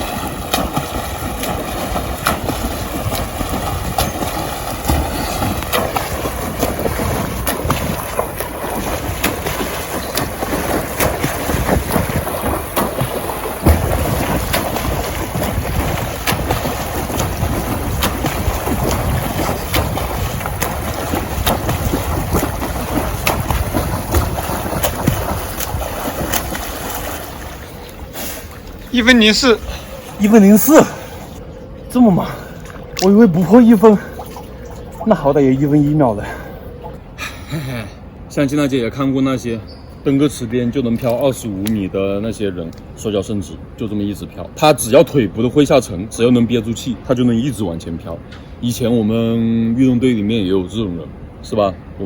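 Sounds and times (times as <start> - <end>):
water splashing in pool: 0.0 - 37.2.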